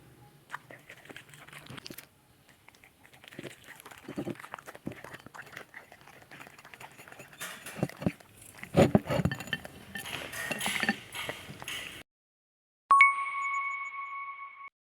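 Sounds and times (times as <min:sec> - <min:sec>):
dog chewing and crunching: 0:00.5 - 0:12.0
clinks of dog dish: 0:06.9 - 0:12.0.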